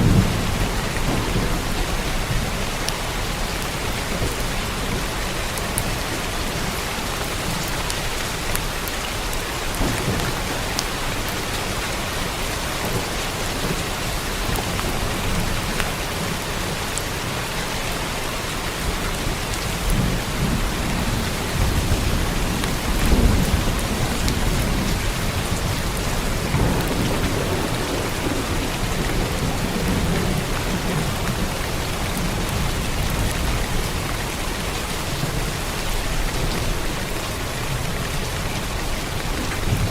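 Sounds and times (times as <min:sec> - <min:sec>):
rolling thunder: 0:00.0 - 0:05.2, 0:09.6 - 0:16.7, 0:19.2 - 0:36.8
heavy rain on a roof: 0:00.0 - 0:39.9.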